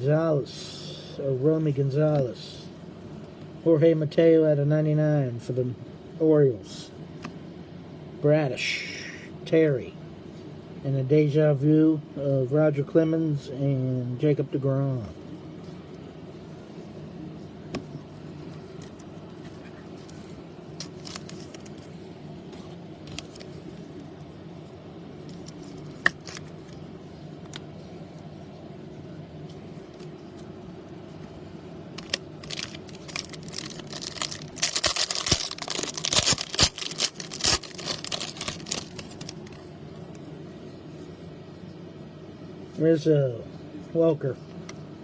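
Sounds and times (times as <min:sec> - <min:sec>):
steady low hum: 0:00.0 - 0:45.0
foil wrapper crinkling: 0:20.8 - 0:21.9, 0:25.3 - 0:26.8, 0:32.0 - 0:39.6.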